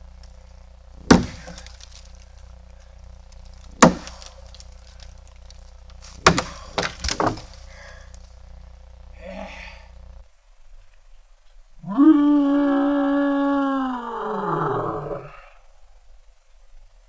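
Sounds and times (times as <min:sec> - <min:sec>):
axe chopping branch: 0:00.1 - 0:08.4.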